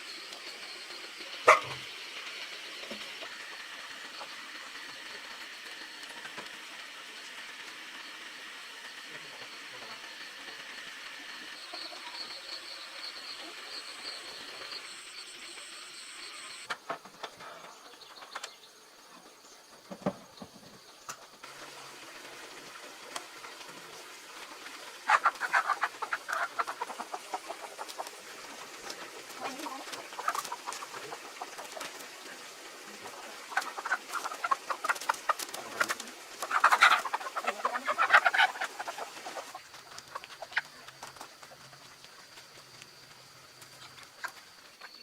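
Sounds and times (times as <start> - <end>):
faint high whine: 0.0 - 16.7
chickens clucking: 1.2 - 1.9, 11.3 - 15.1, 16.3 - 18.6, 22.6 - 45.0.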